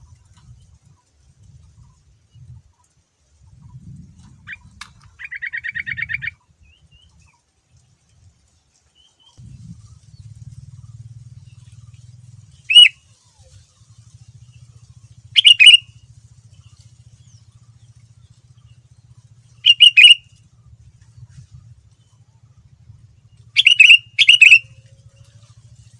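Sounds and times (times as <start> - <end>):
faint low hum: 0.0 - 25.9
bird trilling and whistling: 4.4 - 6.8, 12.5 - 13.5, 15.4 - 15.9, 19.5 - 20.4, 23.5 - 24.8.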